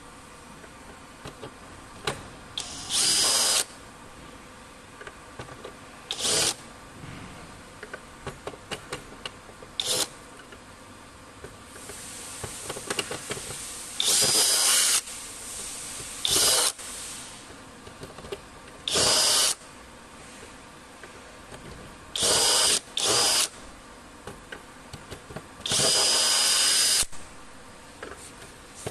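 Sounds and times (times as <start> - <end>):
cordless drill running: 2.6 - 3.7, 6.1 - 6.6, 14.0 - 15.0, 16.2 - 16.8, 18.9 - 19.6, 22.2 - 23.5, 25.7 - 27.1.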